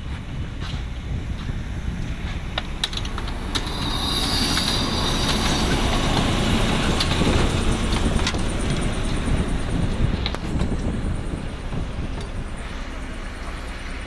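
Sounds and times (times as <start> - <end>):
train rolling rumble: 0.0 - 14.0
wheels clicking over track: 0.2 - 14.0
wheel squeal on rails: 2.8 - 10.8.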